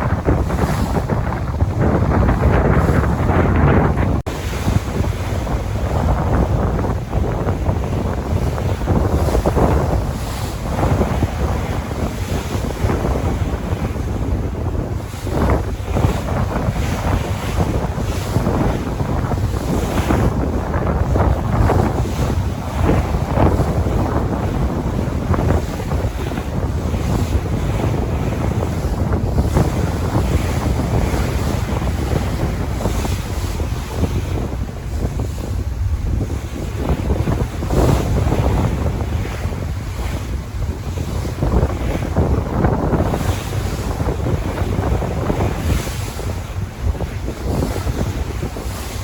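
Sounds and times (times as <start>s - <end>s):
sea waves breaking: 0.0s - 49.0s
wind buffeting microphone: 0.0s - 49.0s.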